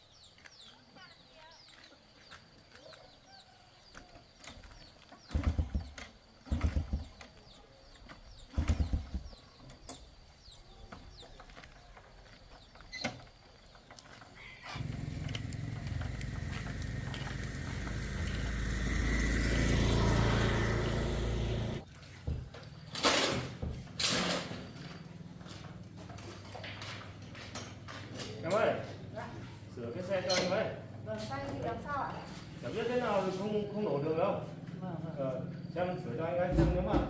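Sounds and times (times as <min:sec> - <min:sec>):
small motorcycle engine: 0:14.7 - 0:21.9.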